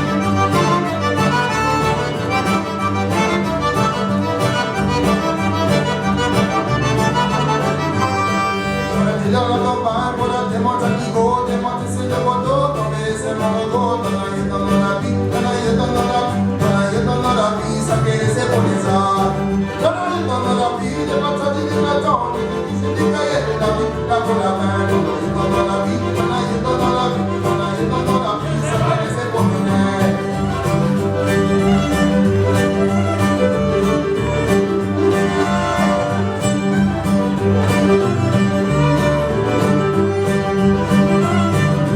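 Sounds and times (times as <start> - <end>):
fiddle playing a tune: 0.0 - 41.9
strummed guitar: 0.0 - 41.9
steady bass line: 24.9 - 41.9.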